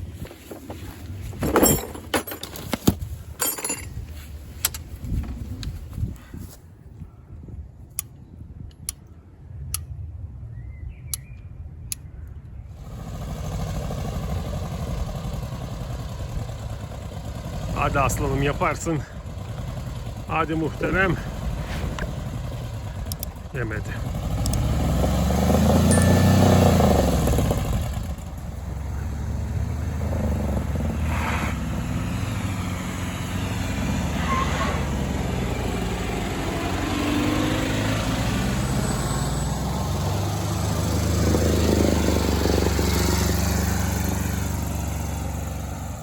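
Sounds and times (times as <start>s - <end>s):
car engine revving: 12.8s - 46.0s.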